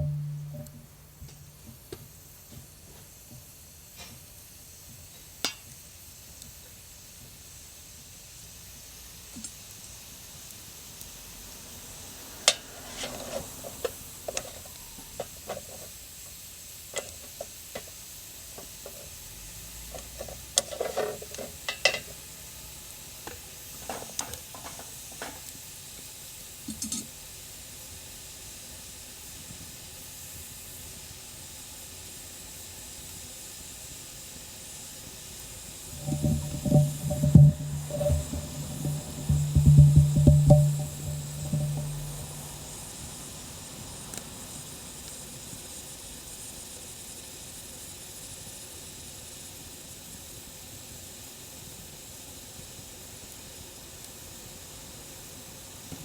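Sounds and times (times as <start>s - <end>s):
wood fire crackling: 0.0s - 2.5s, 35.6s - 43.3s
faint steady hiss: 0.0s - 56.0s.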